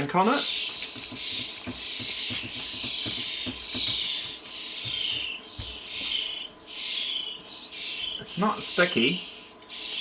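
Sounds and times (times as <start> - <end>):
scrubbing strokes on circuit board: 0.4 - 5.1.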